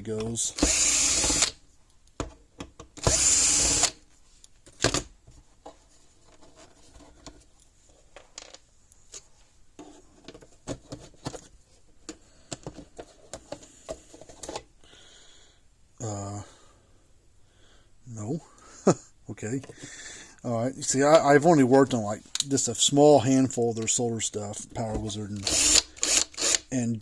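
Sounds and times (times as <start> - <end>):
cordless drill running: 0.6 - 1.6, 3.0 - 4.0, 25.4 - 26.6.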